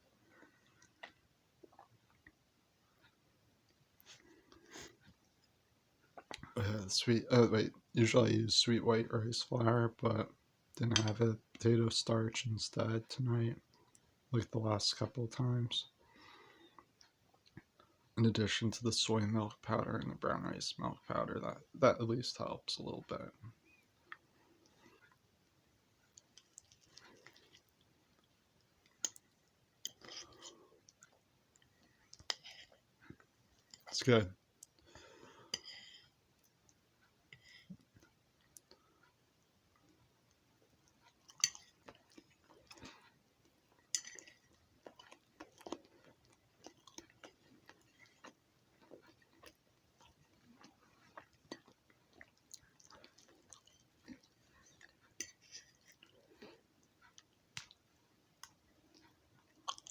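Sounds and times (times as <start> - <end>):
person chewing food: 0.2 - 2.4, 26.0 - 33.9, 34.5 - 59.9.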